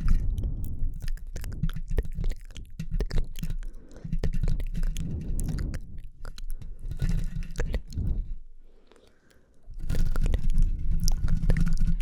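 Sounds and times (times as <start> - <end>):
low rumble: 0.0 - 2.2
wet mouth clicks and smacks: 0.0 - 6.7, 9.2 - 12.0.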